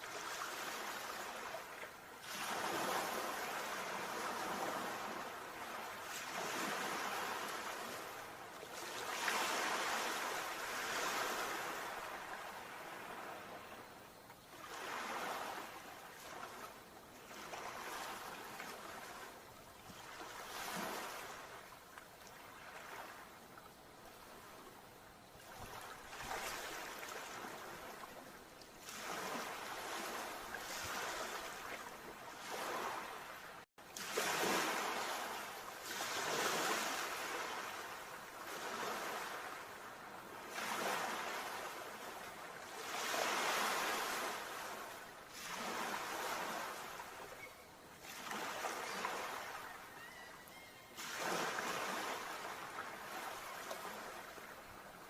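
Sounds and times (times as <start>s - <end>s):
sea waves washing onto shore: 14.6s - 47.4s.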